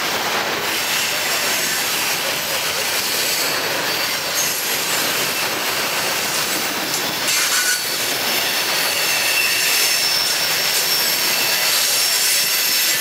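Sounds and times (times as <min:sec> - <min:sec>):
train wheels rolling on rails: 0:00.0 - 0:13.0
high-pitched wheel squeals: 0:07.3 - 0:13.0.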